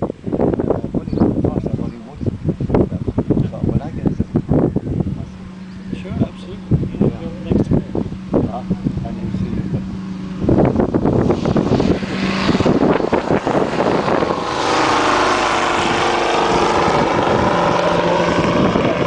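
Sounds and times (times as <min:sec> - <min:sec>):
propeller engine drone: 0:00.0 - 0:19.0.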